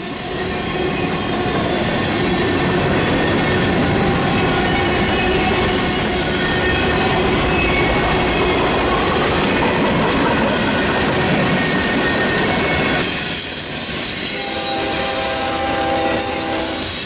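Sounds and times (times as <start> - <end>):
steel wheels rumbling on rail: 0.0 - 17.0
high wheel squeals: 10.7 - 17.0.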